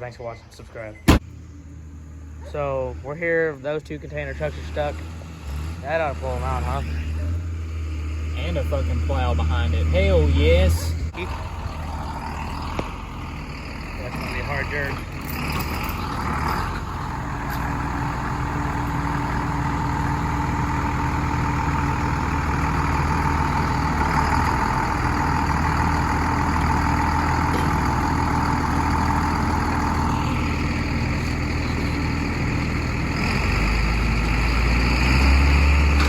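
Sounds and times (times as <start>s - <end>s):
heavy truck and tractor engines: 0.0s - 36.0s.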